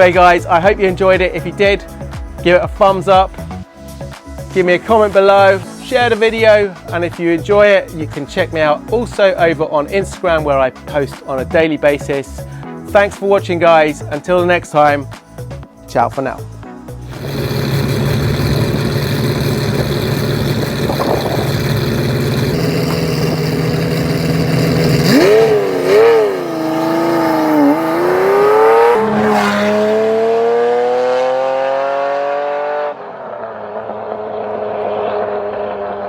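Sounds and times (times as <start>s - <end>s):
car engine revving: 17.1s - 36.0s.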